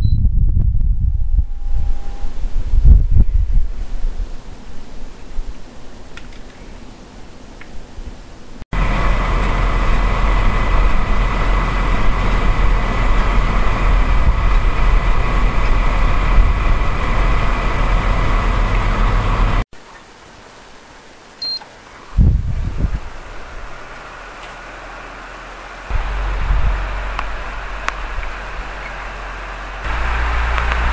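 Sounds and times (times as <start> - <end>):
quieter rumble: 0.0 - 5.6, 8.8 - 19.6, 25.9 - 30.9
electrical motor whining: 8.8 - 19.6, 25.4 - 30.9.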